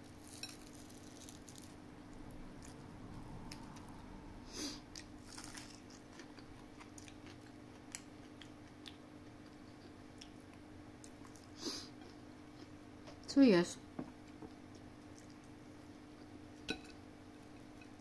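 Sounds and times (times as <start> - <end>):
chewing and mouth sounds: 5.0 - 13.2, 14.2 - 15.6.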